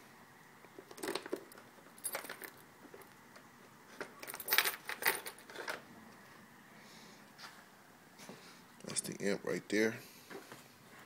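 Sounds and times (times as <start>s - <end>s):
keys jangling: 1.0s - 2.6s, 4.2s - 5.8s.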